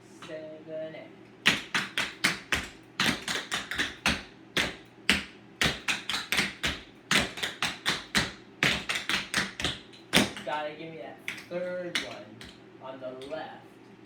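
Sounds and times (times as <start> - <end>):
tap shoes striking hard floor: 1.5 - 10.5.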